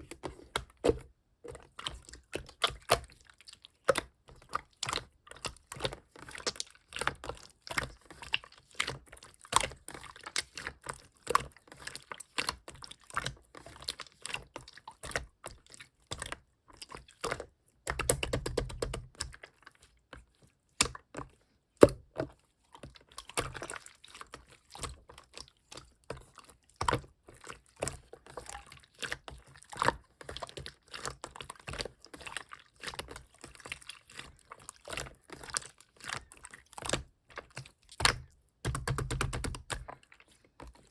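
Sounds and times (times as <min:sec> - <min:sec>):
slime squishing by hand: 0:11.4 - 0:40.9.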